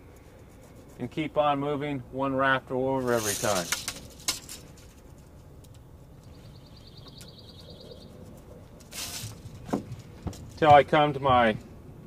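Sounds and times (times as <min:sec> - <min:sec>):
scratchy rustle: 0:00.1 - 0:01.3, 0:03.0 - 0:05.6, 0:07.8 - 0:10.2
bird trilling: 0:06.2 - 0:08.3.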